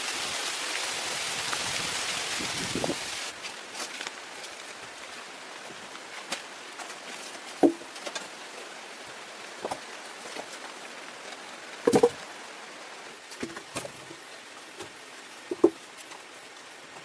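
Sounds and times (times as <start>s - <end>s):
rain hiss: 0.0s - 17.0s
light taps and knocks: 14.8s - 16.1s.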